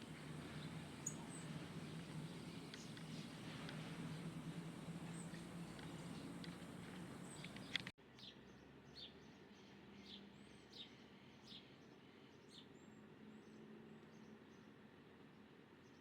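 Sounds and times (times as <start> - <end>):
birds chirping: 0.0 - 8.3
faint background noise: 0.0 - 16.0.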